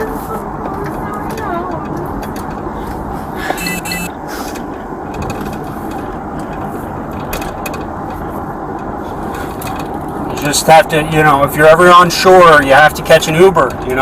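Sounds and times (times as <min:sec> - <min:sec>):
road and engine noise in car: 0:00.0 - 0:14.0
light clicks and rattles: 0:00.6 - 0:03.1, 0:04.5 - 0:10.9.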